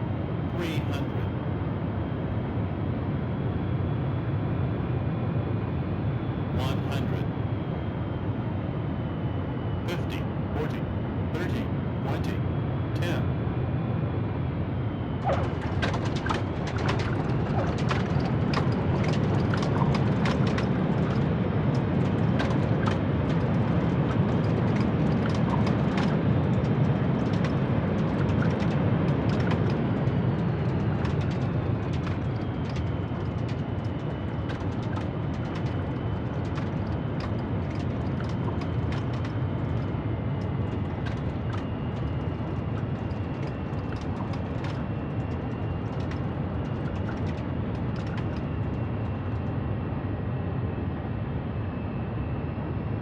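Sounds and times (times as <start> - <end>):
high engine whine: 6.3 - 13.4, 14.1 - 50.8
jet engines roaring: 15.2 - 49.4.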